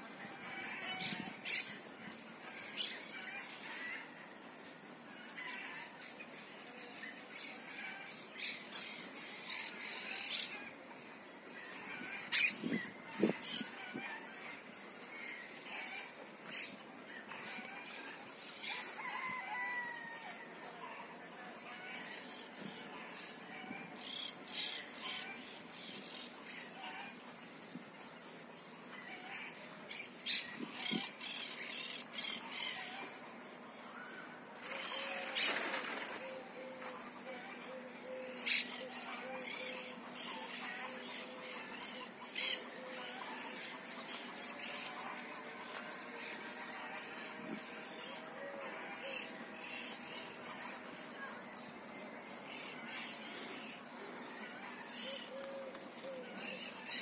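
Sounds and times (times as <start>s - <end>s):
birds calling: 6.0s - 19.3s.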